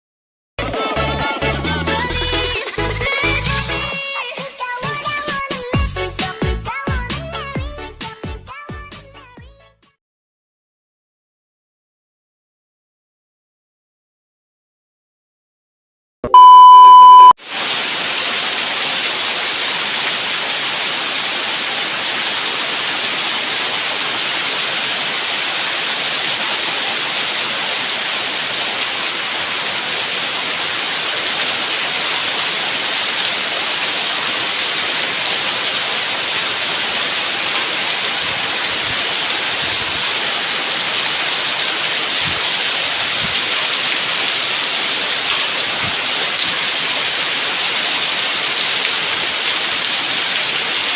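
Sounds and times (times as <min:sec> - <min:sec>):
electronic beep: 0:16.3 - 0:17.4
heavy rain falling: 0:17.4 - 0:50.9.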